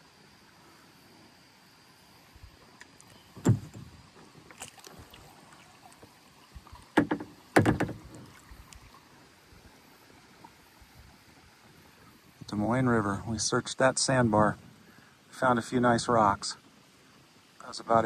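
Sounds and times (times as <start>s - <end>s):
kayak paddle strokes: 2.6s - 10.7s.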